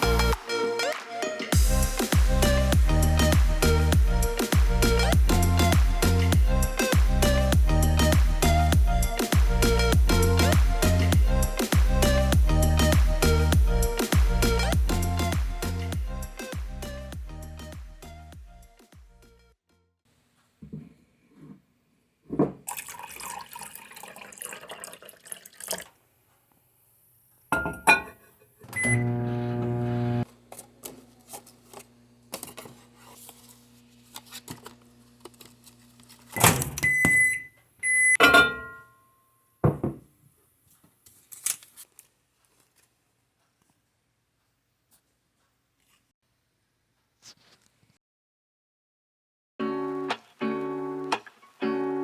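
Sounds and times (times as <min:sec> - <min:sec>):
appliance beeps: 0:28.8 - 0:30.2, 0:36.4 - 0:38.8
appliance humming: 0:28.8 - 0:30.2
rustling and handling noise: 0:40.6 - 0:46.1, 0:46.9 - 0:48.0.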